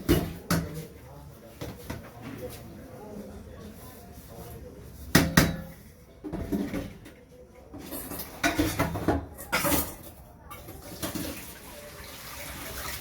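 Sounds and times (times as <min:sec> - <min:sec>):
dishes clattering: 0:07.8 - 0:11.4.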